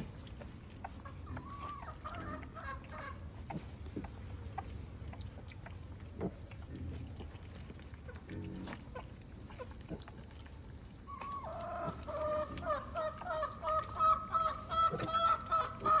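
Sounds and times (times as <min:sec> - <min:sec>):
chicken clucking: 0:00.8 - 0:03.6, 0:11.0 - 0:16.0.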